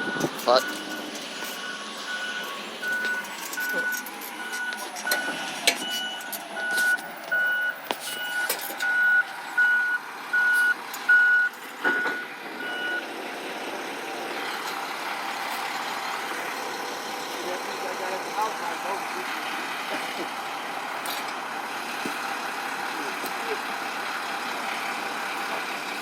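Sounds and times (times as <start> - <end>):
truck reverse alarm beeping: 0.0 - 13.2.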